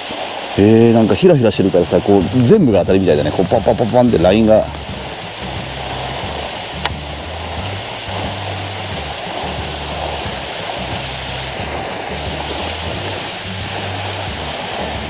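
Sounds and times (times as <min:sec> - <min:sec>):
rain hissing: 0:00.0 - 0:15.0
background music with bass: 0:01.6 - 0:15.0
sharp click: 0:06.8 - 0:07.0.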